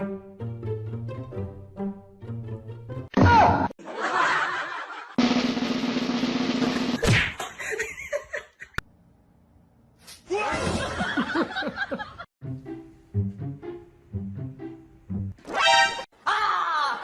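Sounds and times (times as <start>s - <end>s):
loud noise: 5.2s - 7.0s
burst of laughter: 10.6s - 12.2s.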